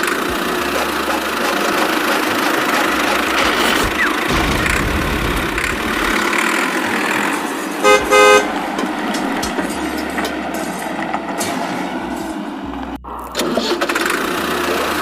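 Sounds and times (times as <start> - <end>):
horn toots: 0.0 - 10.1
engine running: 0.0 - 15.0.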